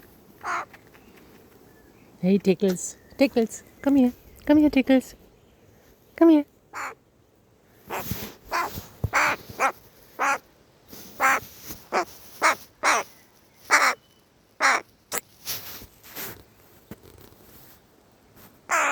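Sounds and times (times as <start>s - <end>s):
crow cawing: 0.4s - 0.7s, 6.7s - 7.0s, 8.5s - 10.4s, 11.2s - 13.1s, 13.7s - 14.0s, 14.6s - 14.8s, 18.7s - 18.9s.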